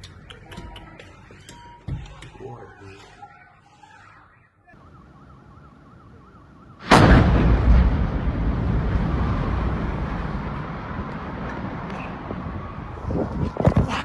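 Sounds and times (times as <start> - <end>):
gas explosion with low rumble: 6.8 - 13.4.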